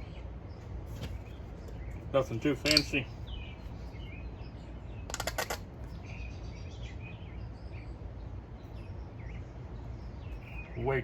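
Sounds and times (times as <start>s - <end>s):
small birds chirping: 0.0s - 11.0s
rattle of quick clicks: 5.1s - 5.6s.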